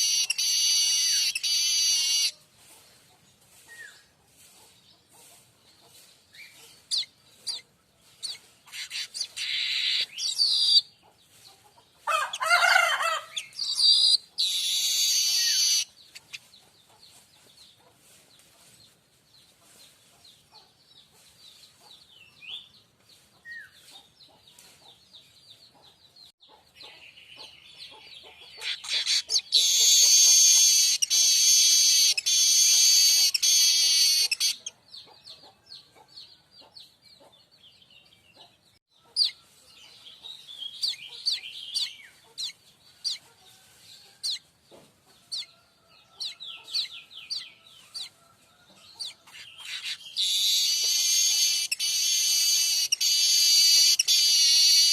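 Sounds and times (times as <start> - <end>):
bird chirping: 0.0 - 43.6, 44.2 - 54.9
bird buzzing wheeze: 50.2 - 54.9.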